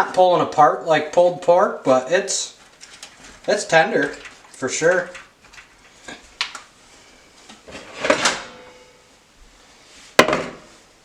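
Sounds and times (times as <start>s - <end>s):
scraping rustle: 2.5s - 10.2s.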